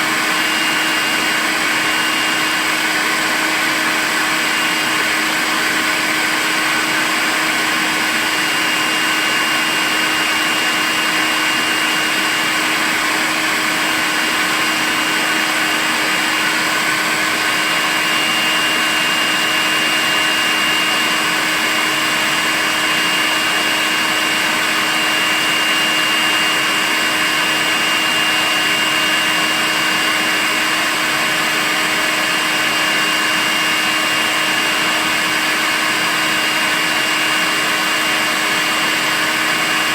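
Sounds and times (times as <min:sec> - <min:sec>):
cordless vacuum cleaner running: 0:00.0 - 0:39.9.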